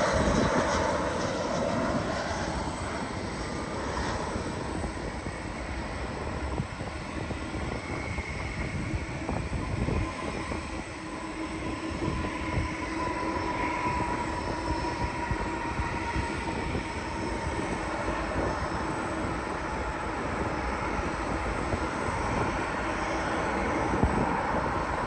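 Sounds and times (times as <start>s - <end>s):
faint jet engine whine: 0.0s - 25.0s
jet engines rumbling: 0.0s - 25.0s.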